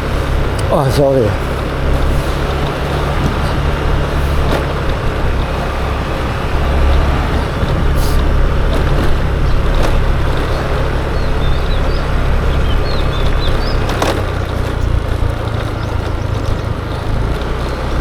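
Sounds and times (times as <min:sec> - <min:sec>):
road noise: 0:00.0 - 0:18.0
scooter engine: 0:00.0 - 0:18.0
wind buffeting microphone: 0:00.0 - 0:18.0.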